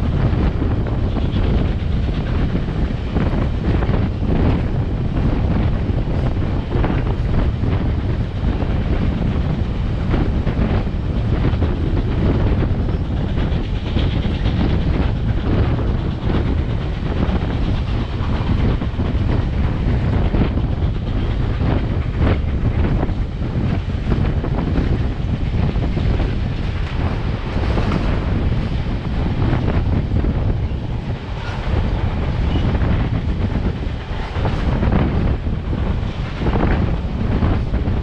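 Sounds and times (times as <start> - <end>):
train car rumbling on track: 0.0 - 38.0
wheels clacking over rail joints: 0.0 - 38.0
wind buffeting microphone: 0.0 - 38.0.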